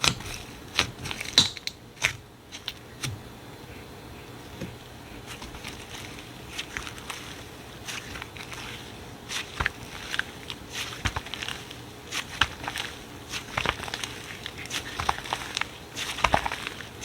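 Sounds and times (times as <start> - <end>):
slime squeezed crackling: 5.3 - 17.0.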